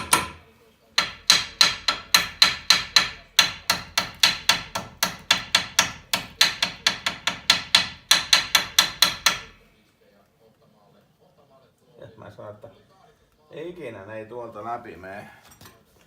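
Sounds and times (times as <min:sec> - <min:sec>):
hammer striking metal: 0:00.0 - 0:00.4, 0:01.0 - 0:09.6.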